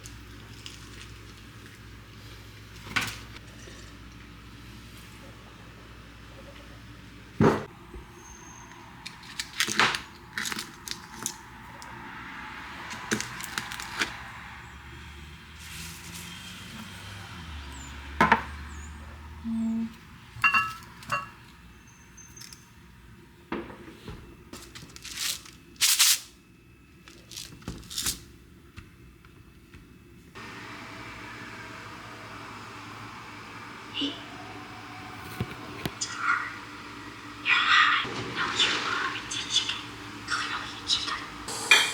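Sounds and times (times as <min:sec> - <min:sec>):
kitchenware clattering: 0:20.4 - 0:21.4, 0:38.1 - 0:40.2, 0:41.1 - 0:41.9.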